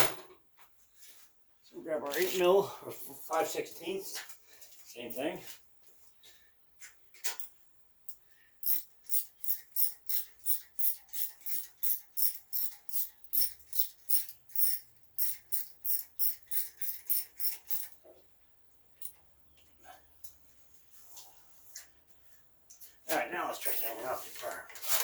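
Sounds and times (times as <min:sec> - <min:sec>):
ratchet wrench strokes: 0:08.6 - 0:18.0.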